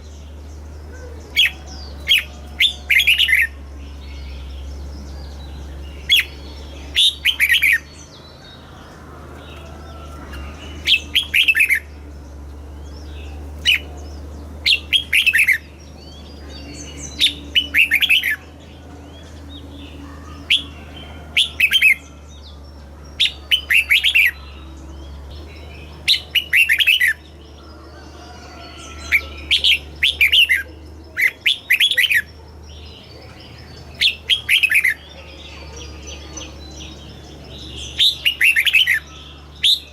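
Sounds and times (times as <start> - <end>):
bulbul singing: 0.0 - 39.9
low steady hum: 0.0 - 39.9.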